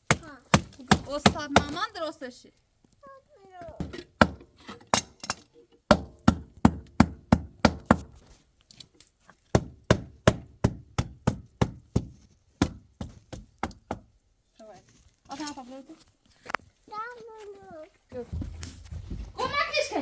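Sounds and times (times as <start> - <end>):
tool striking wood: 0.0 - 1.8, 3.8 - 8.2, 9.5 - 14.1.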